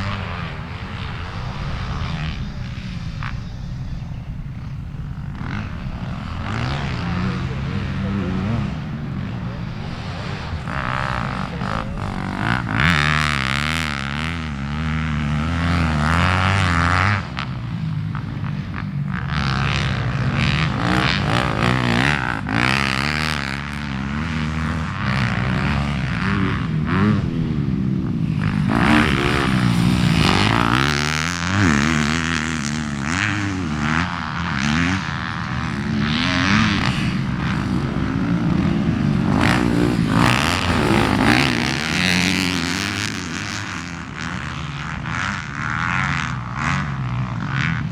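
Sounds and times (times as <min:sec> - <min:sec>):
rushing noise: 0:00.0 - 0:14.0
motocross bike engine revving: 0:00.0 - 0:47.9.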